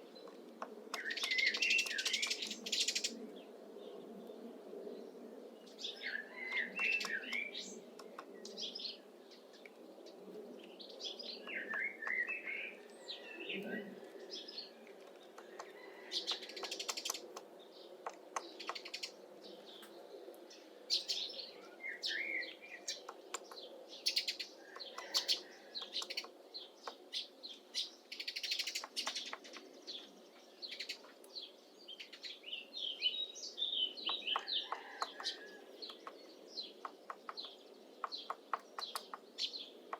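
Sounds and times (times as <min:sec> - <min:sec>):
songbirds chirping and singing: 0:00.0 - 0:39.9
woodpecker tapping on wood: 0:15.0 - 0:19.0, 0:28.6 - 0:29.5, 0:34.1 - 0:36.2, 0:36.8 - 0:39.9.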